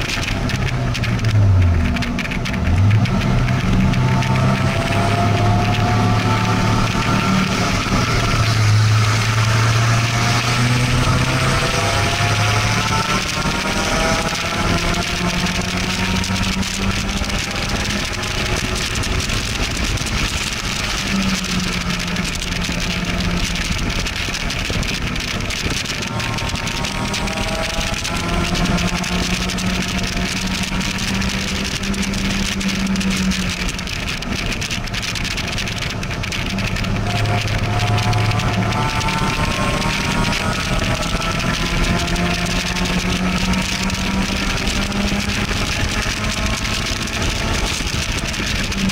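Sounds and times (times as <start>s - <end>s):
car engine pulling hard: 0.0s - 48.9s.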